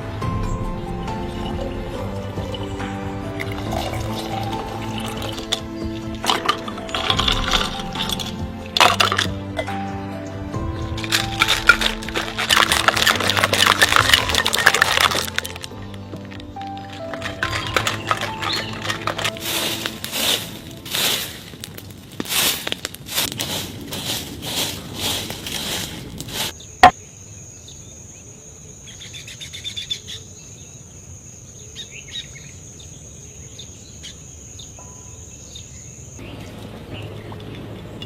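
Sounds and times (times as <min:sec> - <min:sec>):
knocks and scrapes: 0:10.9 - 0:26.6.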